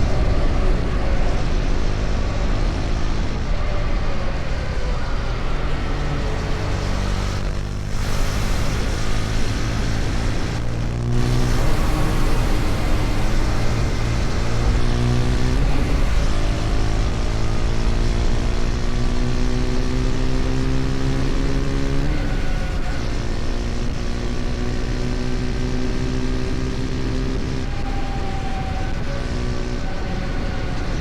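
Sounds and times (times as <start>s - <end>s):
motorcycle engine accelerating: 0.0s - 31.0s
road and wind noise: 0.0s - 31.0s.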